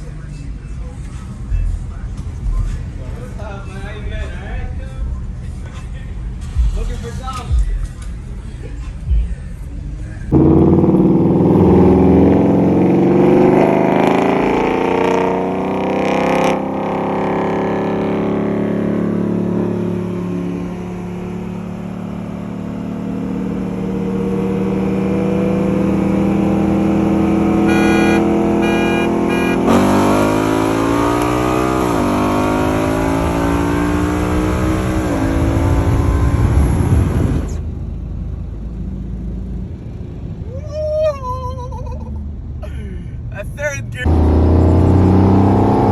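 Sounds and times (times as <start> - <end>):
car engines rolling: 0.0 - 45.9
short beeps: 27.7 - 29.8.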